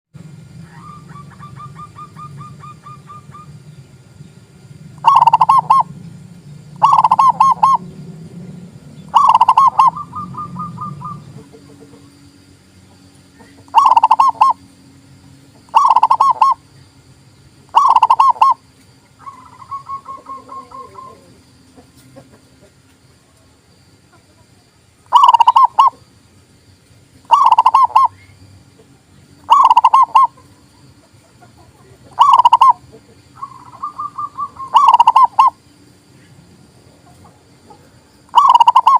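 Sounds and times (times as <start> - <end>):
dove staccato cooing: 5.0 - 6.0, 6.7 - 8.0, 9.0 - 12.2, 13.3 - 14.7, 15.6 - 16.6, 17.7 - 22.9, 24.1 - 26.1, 27.2 - 35.6, 37.0 - 38.9
soft trilled coos: 5.0 - 6.0, 6.8 - 8.0, 9.0 - 12.2, 13.4 - 15.0, 15.7 - 16.7, 17.7 - 18.6, 19.2 - 22.8, 24.0 - 26.0, 27.3 - 35.6, 37.1 - 38.9.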